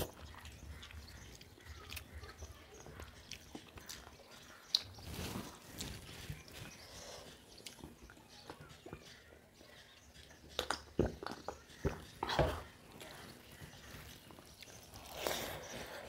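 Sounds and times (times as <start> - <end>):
chewing and lip smacks: 0.0 - 5.0, 7.6 - 9.0, 10.2 - 12.3.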